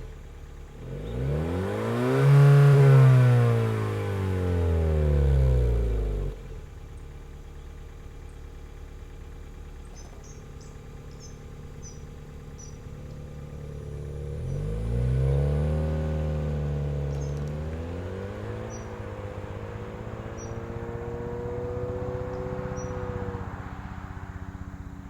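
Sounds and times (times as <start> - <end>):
car engine revving and idling: 0.0 - 25.0
faint bird chirps: 9.7 - 14.7, 17.1 - 17.5, 18.5 - 21.0, 22.0 - 23.4.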